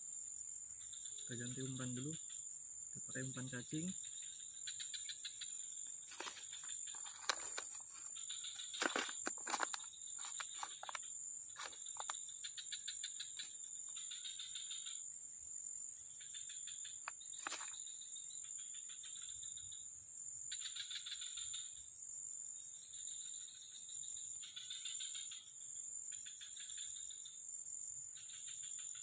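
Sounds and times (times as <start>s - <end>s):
rapid pulsed frog calls: 0.8s - 15.0s, 20.5s - 21.8s
high-pitched insect drone: 0.8s - 15.2s.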